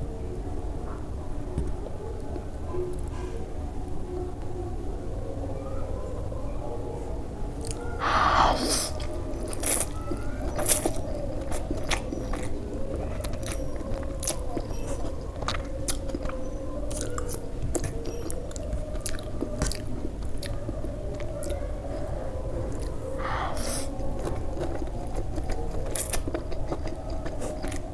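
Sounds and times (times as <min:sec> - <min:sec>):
faint steady hum: 0:00.0 - 0:27.9
biting and chewing: 0:07.6 - 0:27.9.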